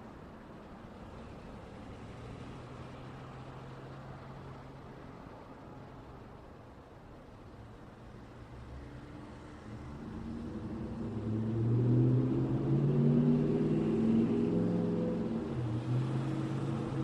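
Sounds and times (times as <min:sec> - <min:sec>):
low traffic rumble: 0:00.0 - 0:17.0
vehicle engine passing close: 0:09.4 - 0:17.0.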